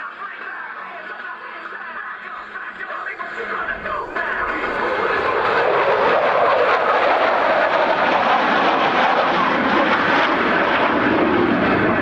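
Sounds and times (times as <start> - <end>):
jet engine roaring: 2.4 - 12.0.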